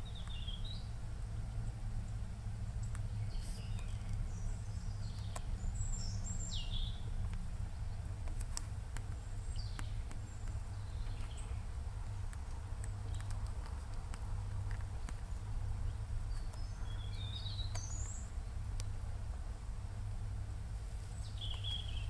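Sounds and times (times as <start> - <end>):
steady low rumble: 0.0 - 22.0
faint clicks: 2.8 - 4.2, 8.2 - 15.4, 16.3 - 16.7.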